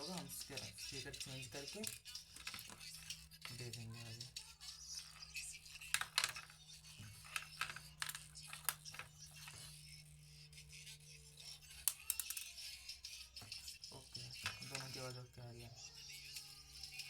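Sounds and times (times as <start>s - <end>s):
plastic parts clicking and rattling: 0.0s - 9.7s, 11.6s - 12.6s, 14.3s - 15.2s.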